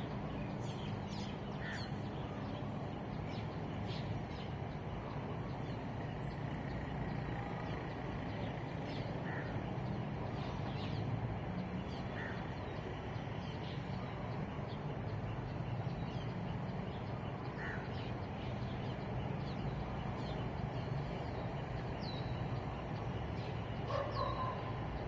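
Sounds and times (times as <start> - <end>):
distant traffic rumble: 0.0 - 25.0
bird calling: 23.9 - 25.0.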